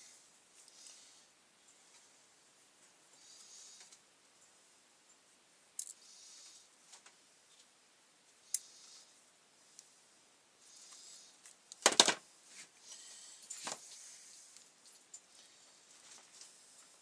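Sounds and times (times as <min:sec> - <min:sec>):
hard parts clicking and rattling: 0:11.8 - 0:12.2.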